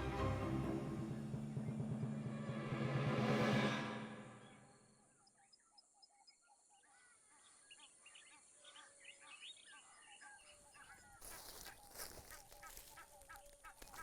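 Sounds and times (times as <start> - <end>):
soundtrack music: 0.0 - 4.7
chirping night animals: 5.0 - 14.0.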